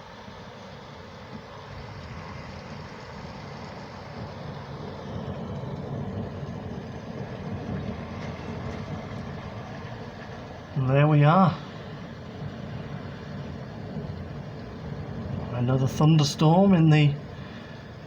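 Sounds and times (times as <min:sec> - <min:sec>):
outdoor background hiss: 0:00.0 - 0:18.0
distant thunder rumbling: 0:01.7 - 0:18.0.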